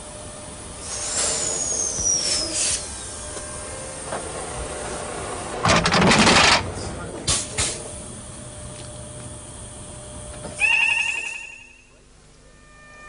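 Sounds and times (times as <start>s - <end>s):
train wheel squeal: 0.8s - 3.1s, 10.5s - 13.0s
air hissing: 0.8s - 3.2s.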